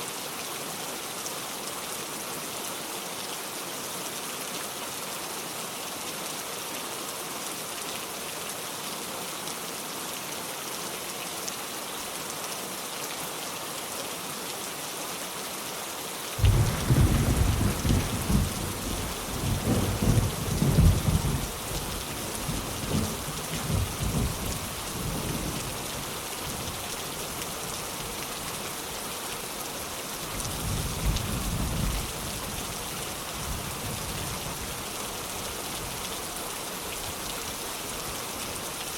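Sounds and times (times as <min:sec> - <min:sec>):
heavy rain on a metal roof: 0:00.0 - 0:38.9
thunder rolling: 0:16.4 - 0:21.6.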